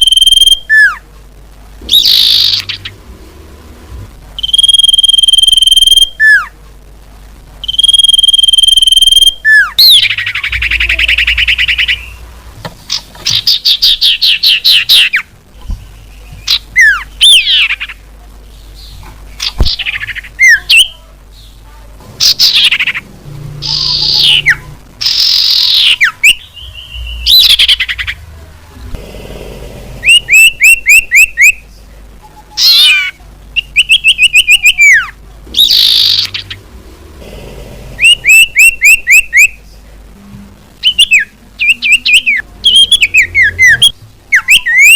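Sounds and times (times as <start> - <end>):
recorded bird whistles and trills: 1.9 - 3.0, 4.4 - 6.5, 7.6 - 12.2, 12.9 - 18.0, 23.6 - 28.2, 30.0 - 31.6, 32.6 - 36.6, 38.0 - 39.6, 40.8 - 44.9.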